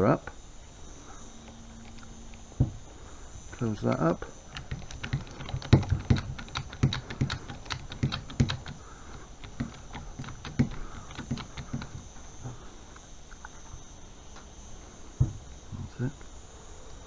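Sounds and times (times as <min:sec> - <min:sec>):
hand crimping tool clicking: 0:03.8 - 0:12.0.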